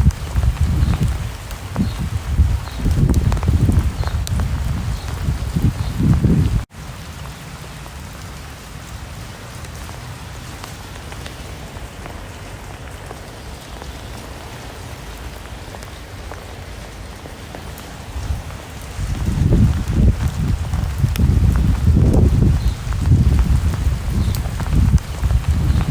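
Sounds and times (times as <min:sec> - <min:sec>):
low gusty rumble: 0:00.0 - 0:06.7, 0:16.9 - 0:25.9
rain falling: 0:00.0 - 0:25.9.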